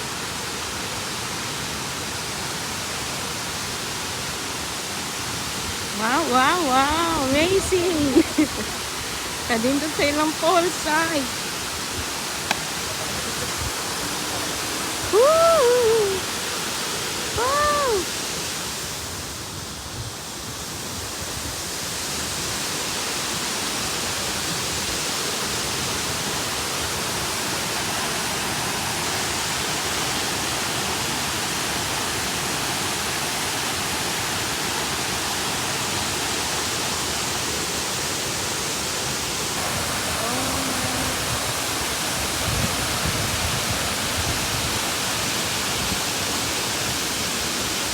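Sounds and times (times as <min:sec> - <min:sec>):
waterfall roaring: 0:00.0 - 0:47.9
person whooping: 0:15.1 - 0:16.3, 0:17.4 - 0:18.1, 0:40.1 - 0:41.2.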